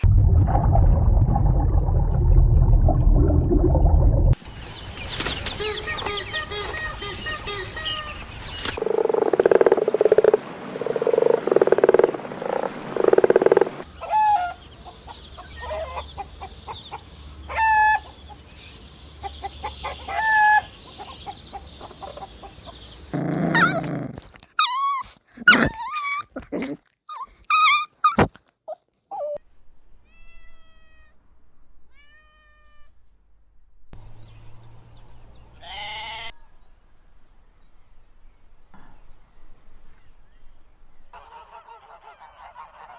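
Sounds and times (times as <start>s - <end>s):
chirping animal calls: 5.3s - 8.8s, 13.4s - 23.9s, 34.2s - 36.3s
loud pitched animal calls: 35.6s - 36.3s.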